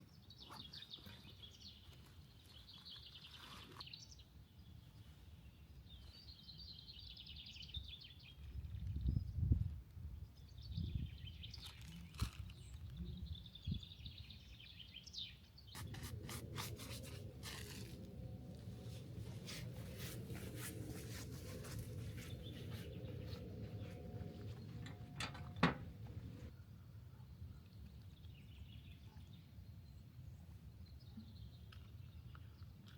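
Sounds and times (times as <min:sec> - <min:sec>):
footsteps on forest trail: 0:15.8 - 0:24.8
low outdoor rumble: 0:15.8 - 0:26.6.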